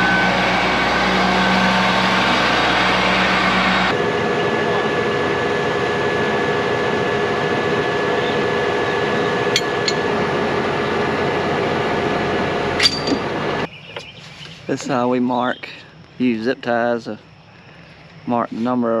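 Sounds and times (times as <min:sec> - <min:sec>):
mechanical running noise: 0:00.0 - 0:13.8
faint hum: 0:00.0 - 0:19.0.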